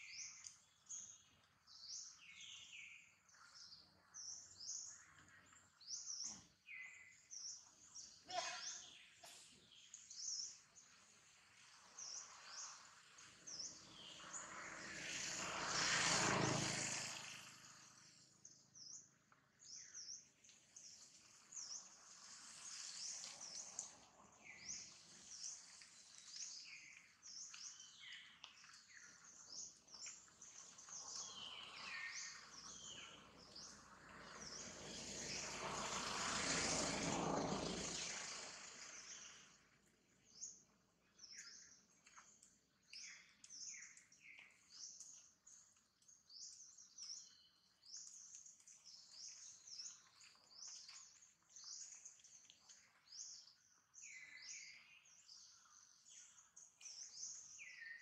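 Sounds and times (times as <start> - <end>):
small birds chirping: 0.0 - 58.0
broad rushing noise: 11.9 - 18.1, 31.1 - 39.6.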